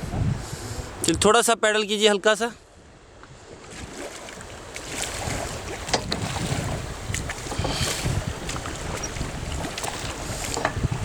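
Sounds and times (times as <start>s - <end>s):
wind buffeting microphone: 0.0s - 1.5s, 2.7s - 11.0s
river water rushing: 2.8s - 11.0s
paddle splashes: 3.2s - 11.0s.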